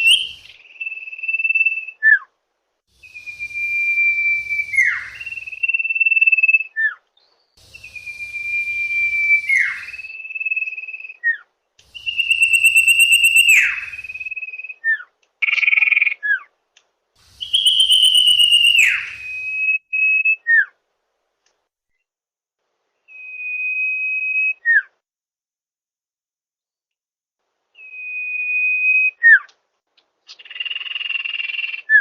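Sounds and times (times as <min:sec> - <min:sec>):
bird whistling: 0:00.0 - 0:02.2, 0:03.0 - 0:07.0, 0:07.6 - 0:15.6, 0:17.3 - 0:20.7.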